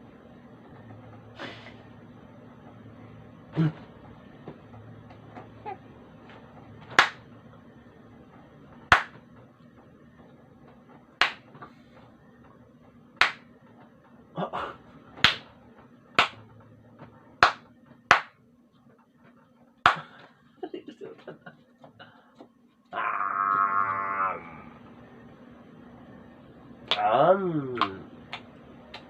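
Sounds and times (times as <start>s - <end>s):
baby slapping hands: 15.2s - 15.5s.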